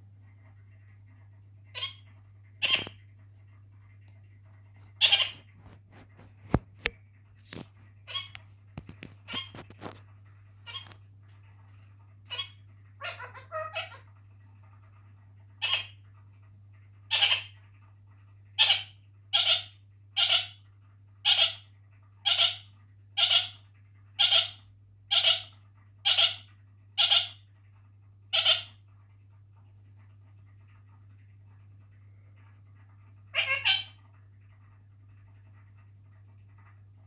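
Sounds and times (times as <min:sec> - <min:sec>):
low steady hum: 0:00.0 - 0:37.0
parakeet calling: 0:01.7 - 0:03.0, 0:05.0 - 0:05.5, 0:08.1 - 0:08.3, 0:10.6 - 0:11.0, 0:12.3 - 0:14.1, 0:15.6 - 0:16.0, 0:17.1 - 0:17.6, 0:18.6 - 0:20.6, 0:21.2 - 0:21.6, 0:22.2 - 0:22.6, 0:23.2 - 0:23.6, 0:24.2 - 0:27.4, 0:28.3 - 0:28.8, 0:33.3 - 0:34.0.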